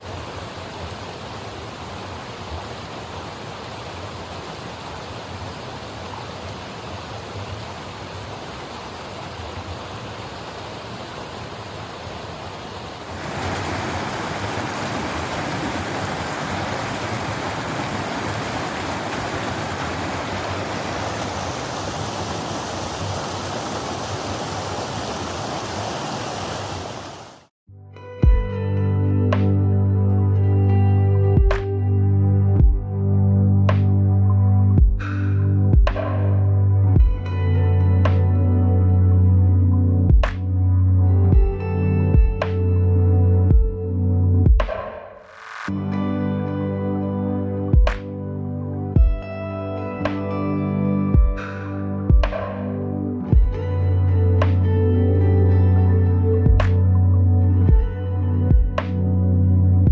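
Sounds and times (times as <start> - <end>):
flowing water rushing: 0.0 - 27.5
soft music: 27.7 - 44.6, 45.7 - 59.9.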